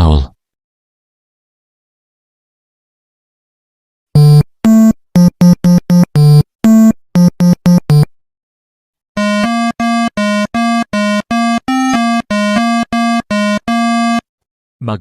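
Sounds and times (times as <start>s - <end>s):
electronic synthesizer tune: 4.2s - 8.1s, 9.2s - 14.2s.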